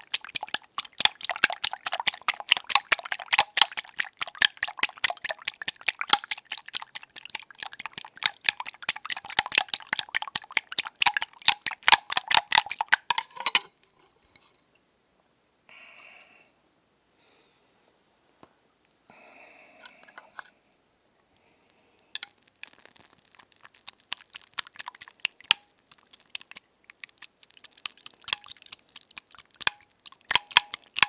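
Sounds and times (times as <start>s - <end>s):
egg beating strokes: 0.0s - 13.3s, 22.2s - 31.0s.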